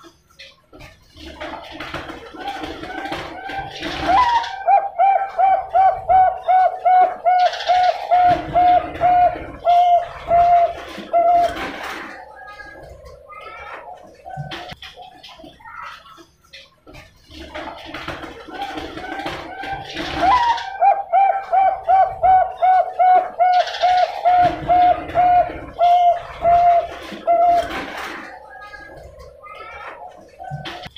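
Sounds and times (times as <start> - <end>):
dove cooing: 2.4 - 14.8, 18.5 - 30.9.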